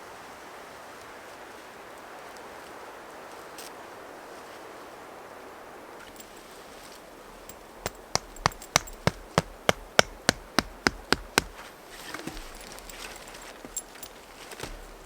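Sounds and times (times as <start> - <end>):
sharp rhythmic knocks: 7.8 - 11.6.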